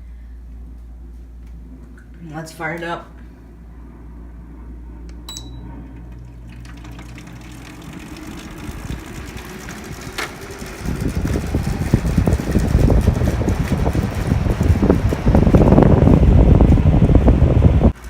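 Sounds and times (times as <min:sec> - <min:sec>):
air conditioner fan spinning: 0:00.0 - 0:18.0
short electronic beep: 0:05.3 - 0:05.7
air buffeting microphone: 0:05.8 - 0:18.0.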